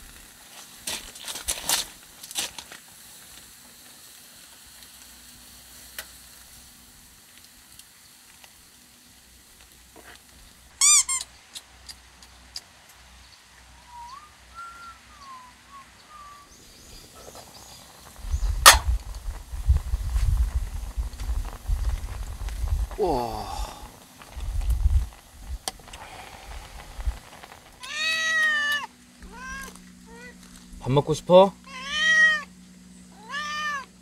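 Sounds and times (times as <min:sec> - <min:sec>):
soft steady hiss: 0:00.0 - 0:34.0
bird chirps: 0:13.2 - 0:18.6
wavering whistled bird call: 0:13.8 - 0:17.3
sharp knock: 0:18.6 - 0:18.9.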